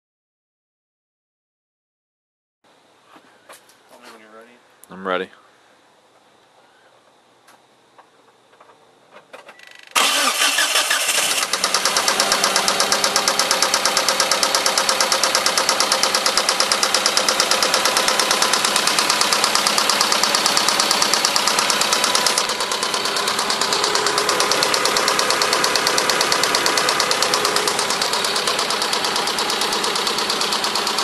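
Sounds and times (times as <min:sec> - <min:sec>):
car engine cranking and starting: 0:09.4 - 0:31.0.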